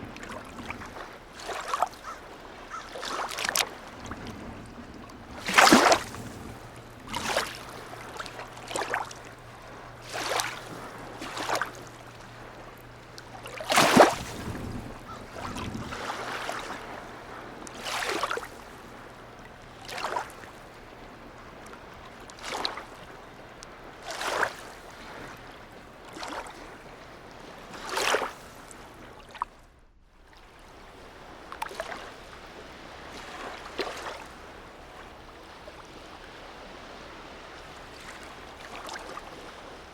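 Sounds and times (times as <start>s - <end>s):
small waves lapping and splashing: 0.0s - 39.9s
low steady hum: 3.6s - 17.7s.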